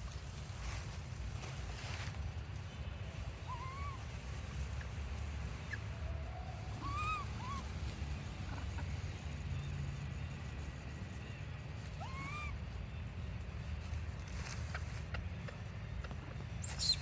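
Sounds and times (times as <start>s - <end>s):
baby monkey crying: 3.5s - 4.1s, 6.7s - 7.9s, 11.9s - 12.6s.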